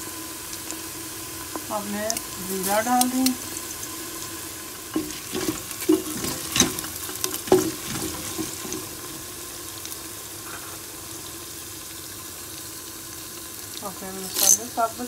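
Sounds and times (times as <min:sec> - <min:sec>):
onions sizzling in hot oil: 0:00.0 - 0:15.0
wooden spoon scraping a pot: 0:05.0 - 0:09.1.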